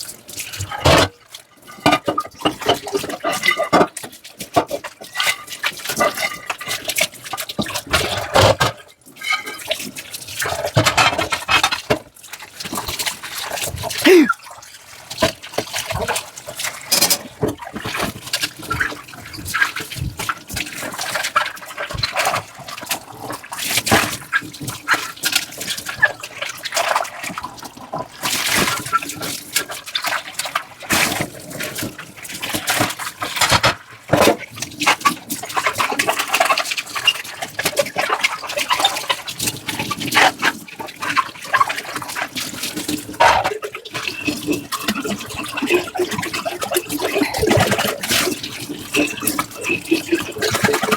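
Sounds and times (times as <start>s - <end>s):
water running and splashing: 0.0s - 50.9s
scrubbing dishes: 0.6s - 4.8s, 10.6s - 12.0s, 42.9s - 50.9s.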